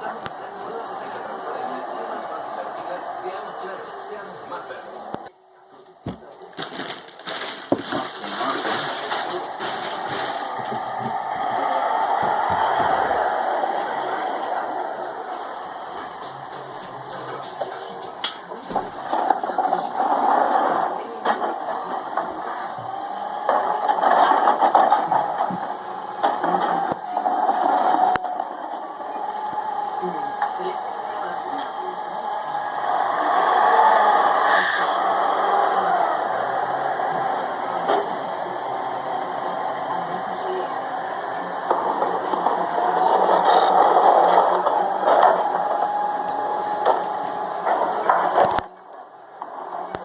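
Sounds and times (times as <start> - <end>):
steady mechanical whine: 0.0 - 7.0, 7.6 - 50.0.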